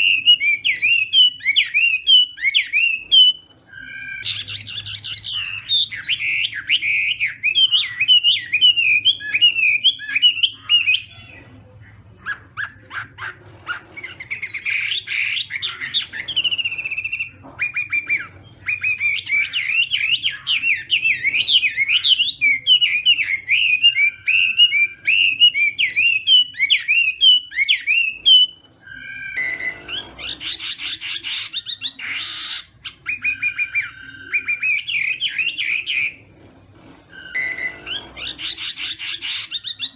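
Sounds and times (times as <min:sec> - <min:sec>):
songbird singing whistled phrases: 0:00.0 - 0:11.4, 0:14.3 - 0:36.2, 0:37.2 - 0:39.9.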